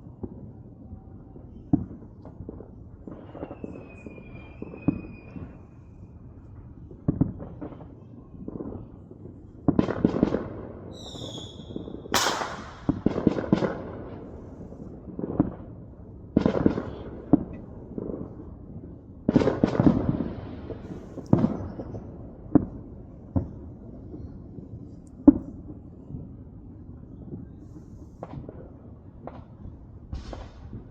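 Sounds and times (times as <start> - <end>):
fireworks crackling volleys: 0.0 - 30.9
high wavering firework whistle: 3.1 - 6.4, 10.9 - 13.0
fireworks banging: 6.9 - 15.7, 19.3 - 23.6, 28.2 - 30.9.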